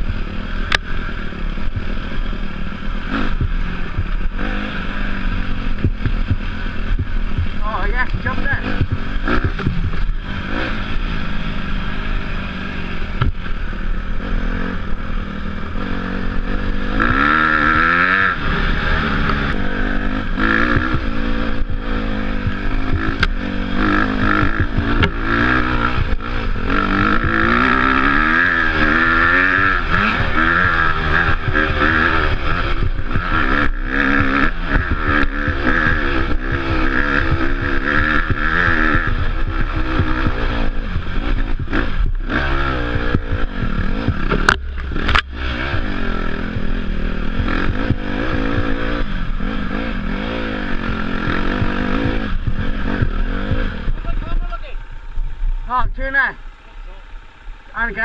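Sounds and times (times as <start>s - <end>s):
off-road motorcycle engine revving: 0.0s - 58.0s.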